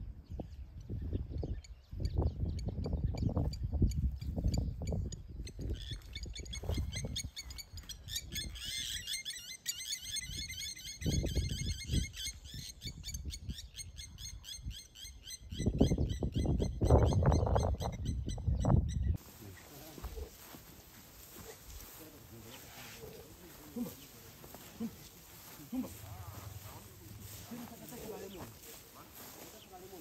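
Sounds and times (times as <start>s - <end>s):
bird song with high chirps: 0.0s - 19.2s.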